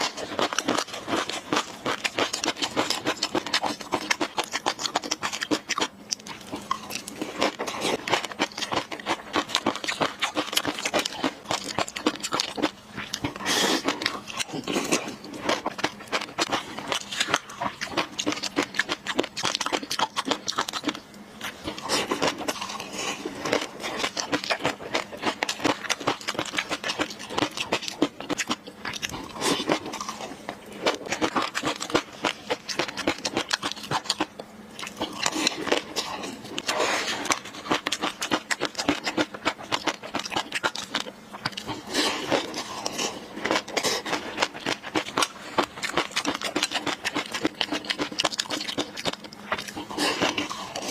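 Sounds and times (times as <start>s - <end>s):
wet chewing and mouth sounds: 0.0s - 50.9s.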